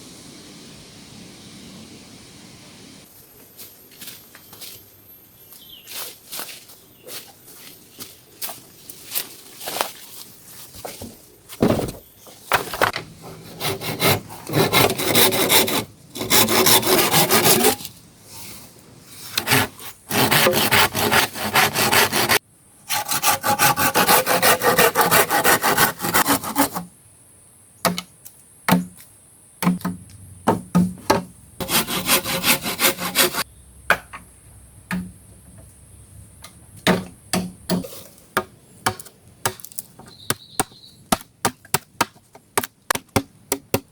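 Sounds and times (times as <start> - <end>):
hand saw cutting wood: 13.4 - 17.9, 19.3 - 26.9, 31.6 - 33.4.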